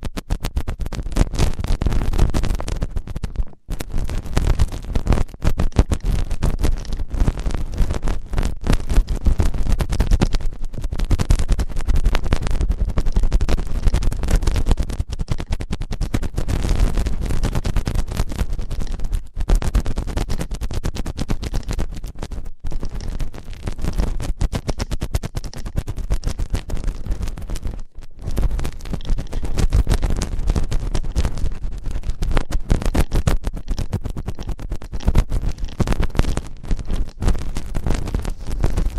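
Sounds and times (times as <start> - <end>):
scratching on microphone: 0.0 - 38.9.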